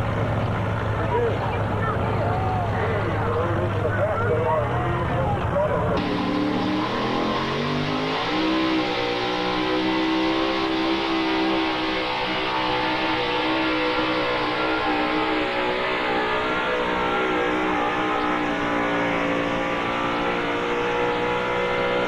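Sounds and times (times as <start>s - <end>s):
truck engine revving high: 5.9s - 22.0s.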